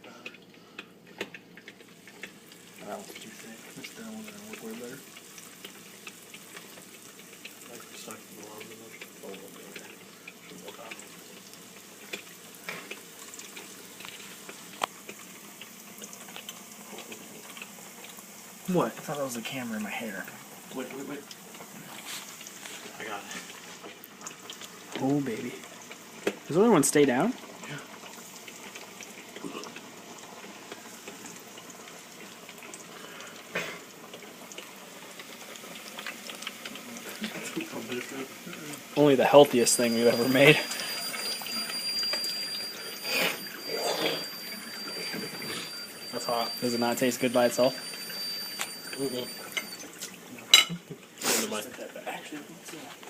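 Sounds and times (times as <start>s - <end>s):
food sizzling in deep-fryer oil: 0.0s - 53.0s.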